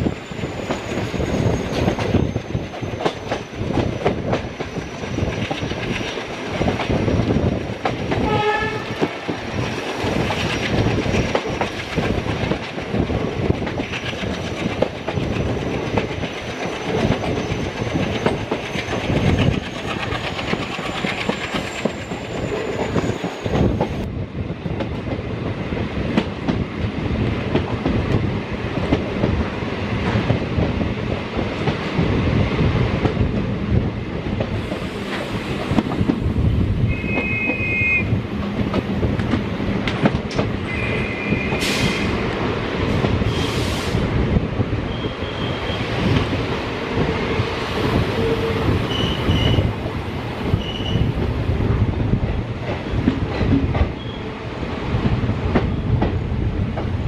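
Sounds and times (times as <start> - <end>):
train wheels clattering on rails: 0.0 - 57.0
train horn blast: 8.2 - 9.1, 36.9 - 38.1, 40.6 - 42.1.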